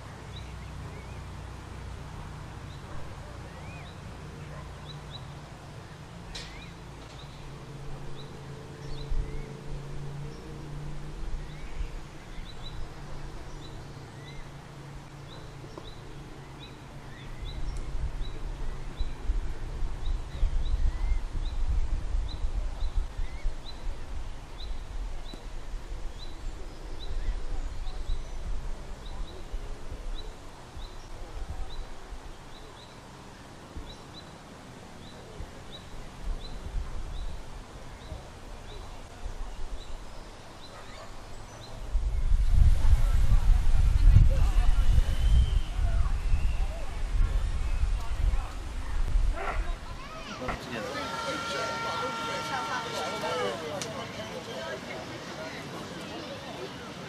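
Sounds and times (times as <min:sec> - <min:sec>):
lower rising bird chirps: 0:43.9 - 0:48.3.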